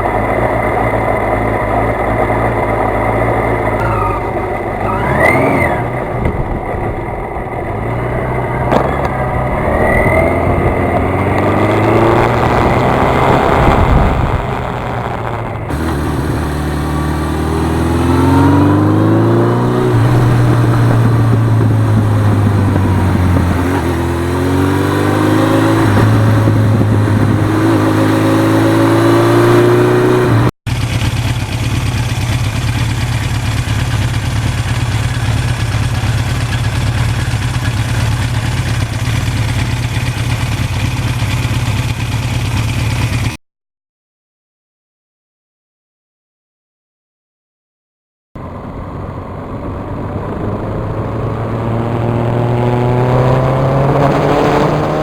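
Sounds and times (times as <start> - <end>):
motorcycle engine accelerating: 0.0 - 43.4, 48.4 - 55.0
wind rushing: 9.0 - 30.0.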